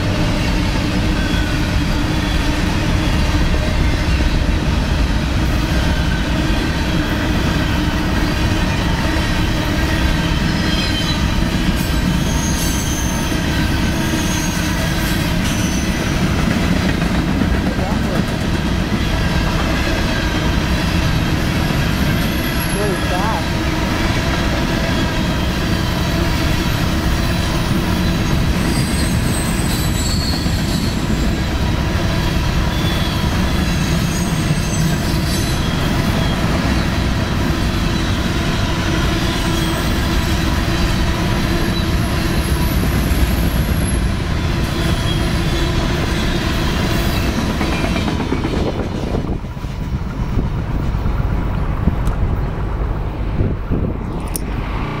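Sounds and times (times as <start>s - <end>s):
freight train wheels rumbling: 0.0s - 55.0s
high-pitched wheel squeal: 10.3s - 14.8s, 27.6s - 31.3s.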